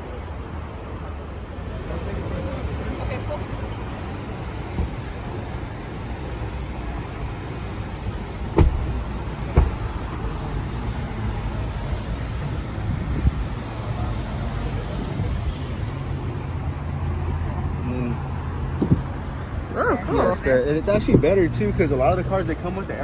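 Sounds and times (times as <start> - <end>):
traffic rumble: 0.0 - 23.0
sharp knocks: 8.6 - 10.2, 18.8 - 19.2.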